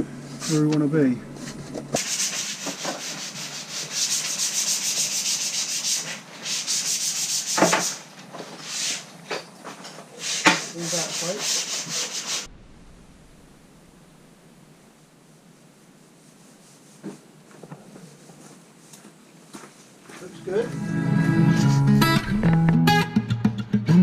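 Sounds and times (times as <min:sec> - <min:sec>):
hand-sanding wood: 0:02.0 - 0:09.1, 0:10.2 - 0:12.5.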